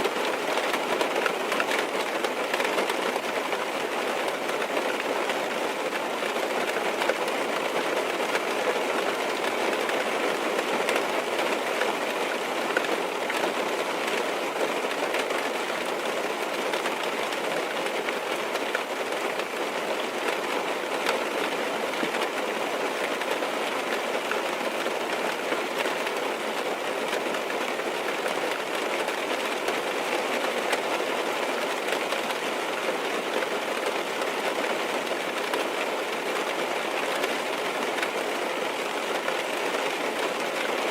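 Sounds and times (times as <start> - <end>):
rain tapping on a car roof: 0.0 - 40.9.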